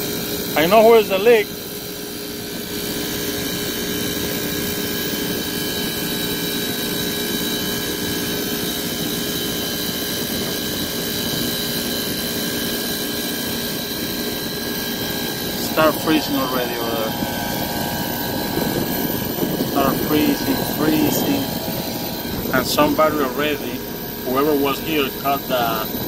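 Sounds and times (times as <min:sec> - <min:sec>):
machine fans whirring: 0:00.0 - 0:26.0
steady tones: 0:12.4 - 0:26.0.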